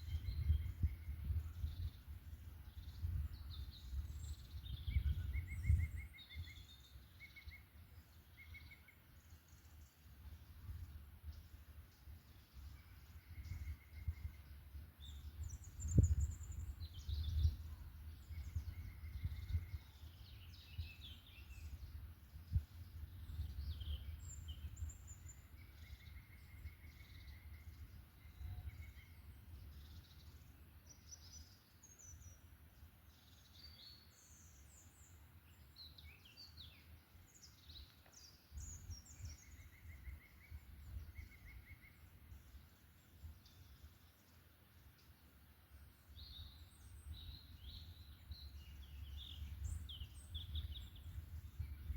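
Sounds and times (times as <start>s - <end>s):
birds chirping and trilling: 0.0s - 32.5s, 33.1s - 51.9s.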